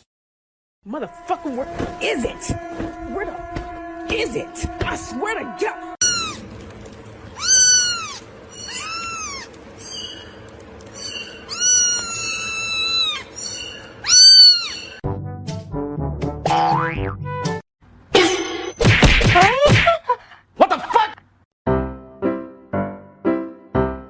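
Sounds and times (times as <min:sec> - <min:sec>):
music: 0:00.8 - 0:06.0, 0:15.0 - 0:17.6, 0:21.7 - 0:24.0
cat meowing: 0:06.0 - 0:06.4, 0:07.4 - 0:10.2, 0:11.0 - 0:15.0.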